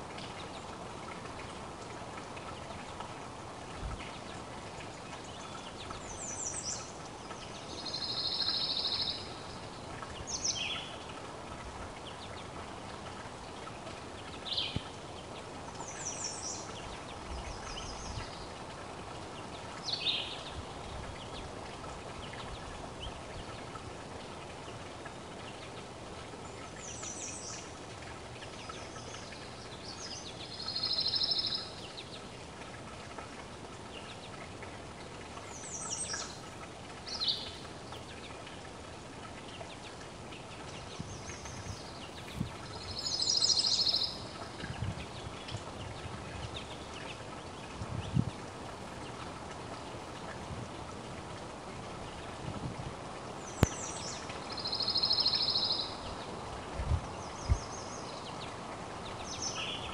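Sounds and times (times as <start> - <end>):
faint steady hiss: 0.0 - 59.9
wild birds calling: 39.5 - 47.7.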